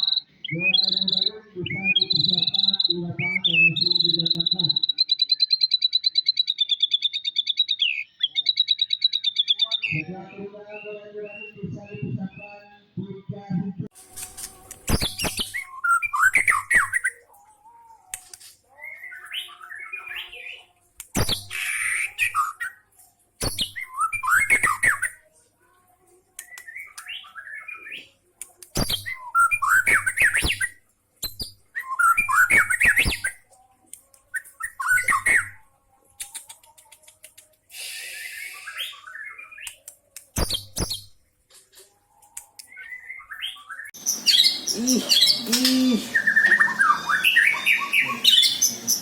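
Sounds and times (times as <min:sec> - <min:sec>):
songbird singing: 0:00.0 - 0:13.7, 0:42.4 - 0:49.0.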